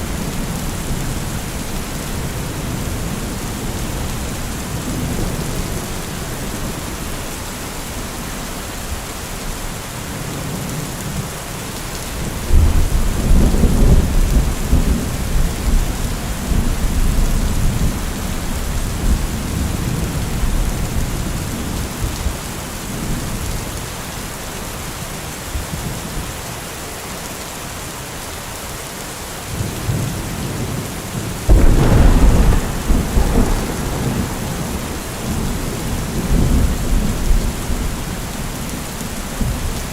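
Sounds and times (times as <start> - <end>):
steady rain: 0.0 - 39.9
thunder rumbling: 31.4 - 39.9.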